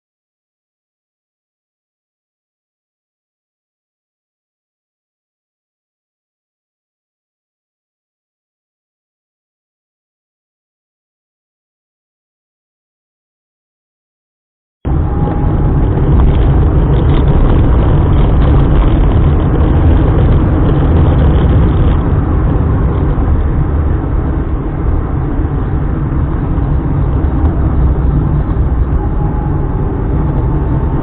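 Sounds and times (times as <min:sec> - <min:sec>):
car driving: 0:14.9 - 0:31.0.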